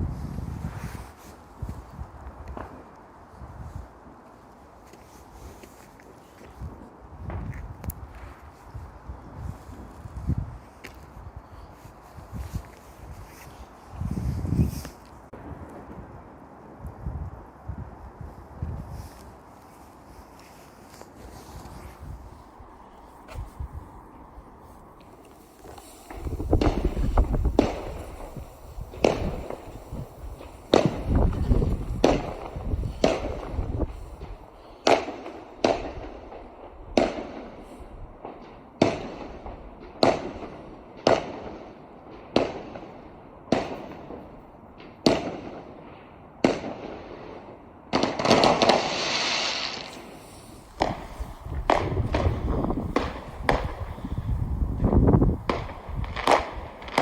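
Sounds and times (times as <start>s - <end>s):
fireworks hissing crackle: 0.0s - 16.0s, 16.8s - 41.6s, 48.0s - 57.0s
fireworks bangs: 20.4s - 57.0s.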